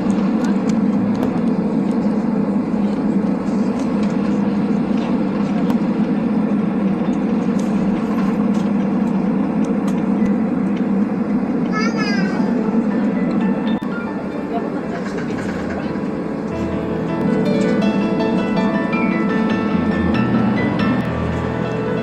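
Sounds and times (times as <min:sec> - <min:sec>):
air conditioning: 0:00.0 - 0:22.0
jet engine cabin rumble: 0:00.0 - 0:22.0.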